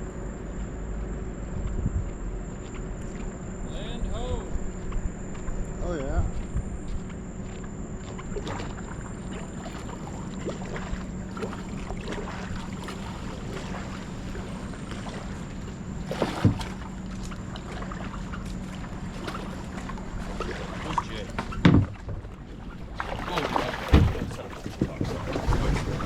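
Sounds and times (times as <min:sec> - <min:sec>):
water moving around kayak: 0:00.0 - 0:26.0
wind on microphone: 0:01.4 - 0:02.6, 0:03.4 - 0:07.1, 0:23.7 - 0:26.0.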